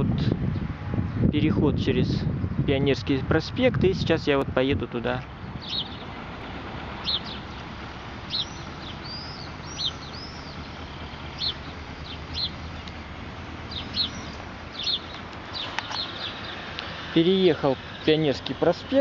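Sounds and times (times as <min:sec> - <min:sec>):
small songbirds chirping: 0:05.0 - 0:19.0.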